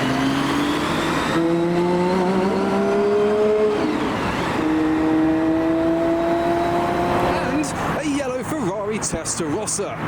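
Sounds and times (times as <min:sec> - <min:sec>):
car engine accelerating hard: 0:00.0 - 0:08.0.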